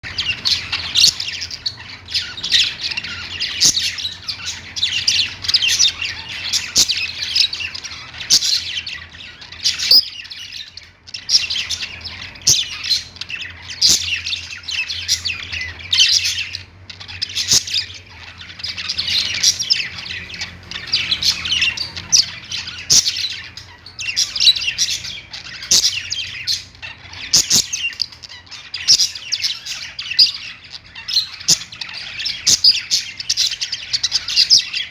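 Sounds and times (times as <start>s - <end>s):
budgerigars chattering and warbling: 0.0s - 34.9s.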